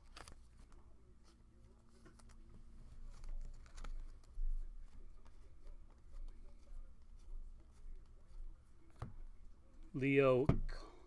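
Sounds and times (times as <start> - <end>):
trading cards rustling and clicking: 0.0 - 0.8, 1.9 - 7.8.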